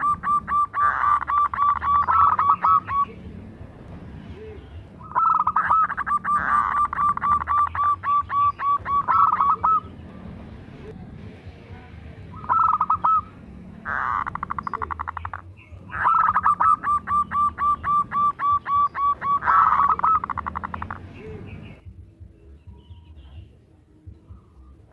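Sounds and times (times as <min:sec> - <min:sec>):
dove cooing: 0:00.0 - 0:03.4, 0:04.4 - 0:10.5, 0:12.3 - 0:21.8.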